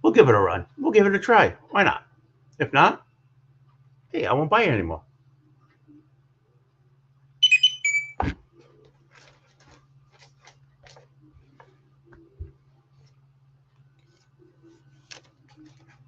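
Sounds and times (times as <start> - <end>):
low steady hum: 0.0 - 16.0
electronic notification chime: 7.4 - 8.2
faint clicks and rustles: 8.5 - 16.0.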